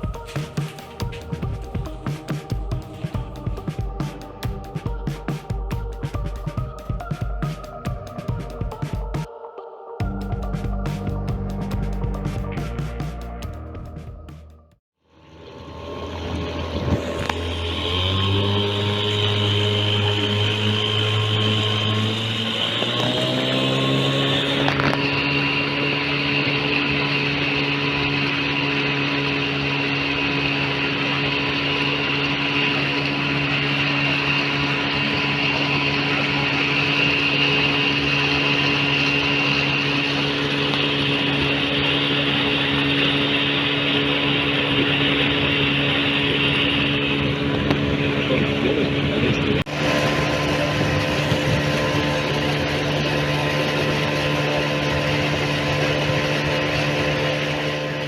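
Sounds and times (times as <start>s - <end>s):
engine droning with hiss: 15.2s - 58.0s.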